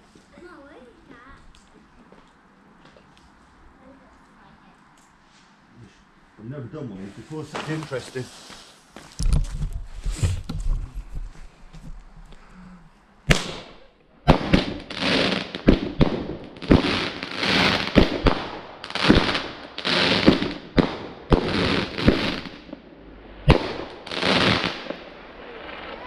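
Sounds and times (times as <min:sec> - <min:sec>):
fireworks cracking and bursting: 0:07.2 - 0:10.4, 0:13.3 - 0:26.0.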